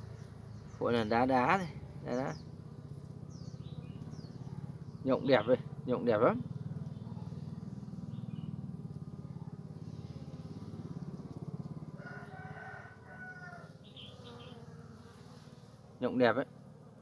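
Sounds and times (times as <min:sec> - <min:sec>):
honeybees buzzing: 0:00.0 - 0:17.0
rooster crowing: 0:11.8 - 0:13.9.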